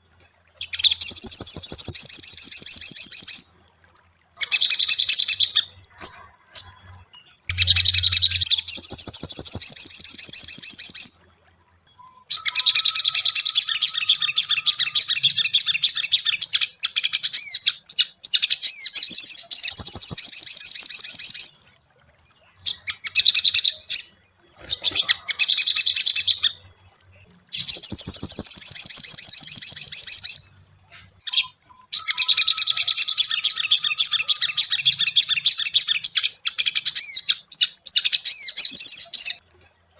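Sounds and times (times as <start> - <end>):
bird singing rapid high chirps: 0.0 - 39.9.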